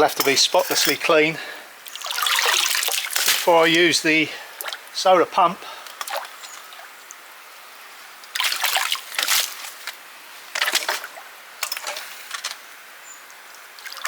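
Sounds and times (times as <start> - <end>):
water splashing in a trough: 1.8 - 3.8, 4.6 - 4.9, 6.0 - 7.2, 8.3 - 10.0, 10.6 - 12.3, 13.8 - 14.0.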